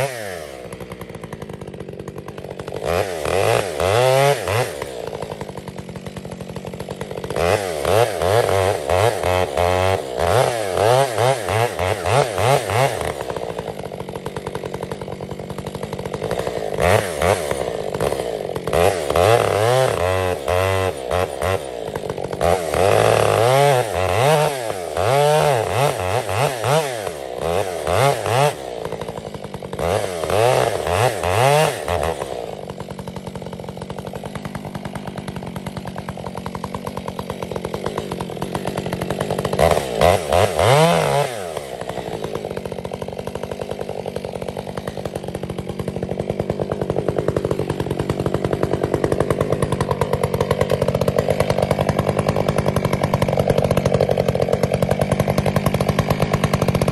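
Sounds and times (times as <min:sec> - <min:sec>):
two-stroke chainsaw revving and idling: 0:00.0 - 0:56.9.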